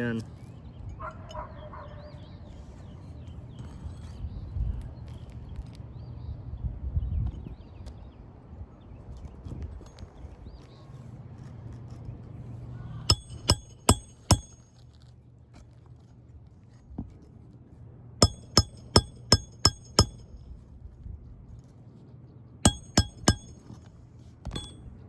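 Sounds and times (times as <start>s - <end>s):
hammer striking roofing nail: 13.1s - 14.7s, 18.2s - 20.4s, 22.7s - 23.9s.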